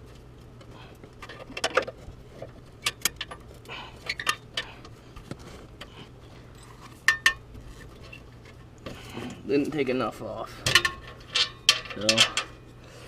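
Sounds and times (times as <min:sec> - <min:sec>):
metal clinking: 0:10.7 - 0:12.7.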